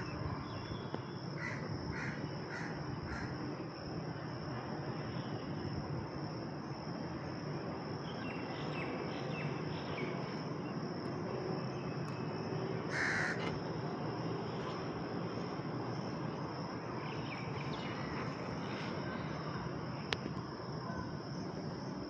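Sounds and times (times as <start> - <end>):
outdoor background: 0.0 - 22.0
crow cawing: 1.4 - 3.3, 12.9 - 13.5.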